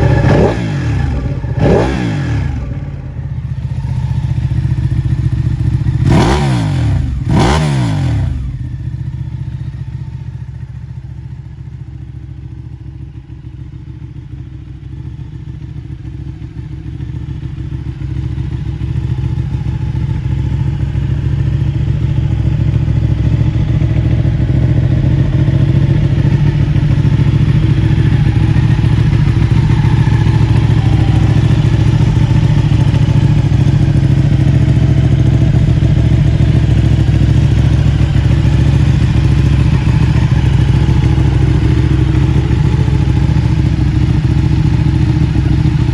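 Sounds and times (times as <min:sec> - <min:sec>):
motorcycle engine revving and idling: 0:00.0 - 0:45.9.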